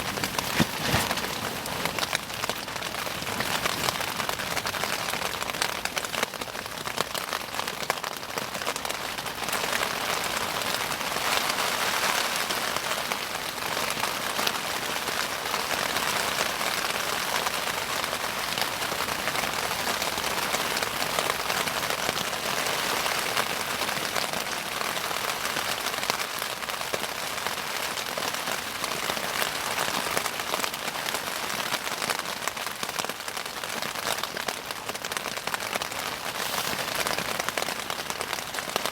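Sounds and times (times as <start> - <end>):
bonfire crackling: 0.0 - 7.2, 32.7 - 38.9.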